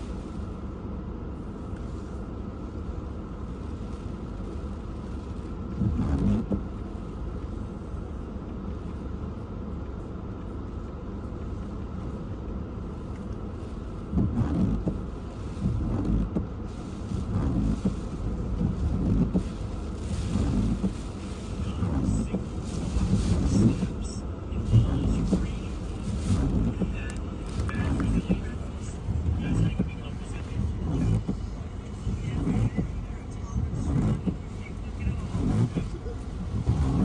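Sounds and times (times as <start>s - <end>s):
strong wind buffeting a car: 11.4s - 37.0s.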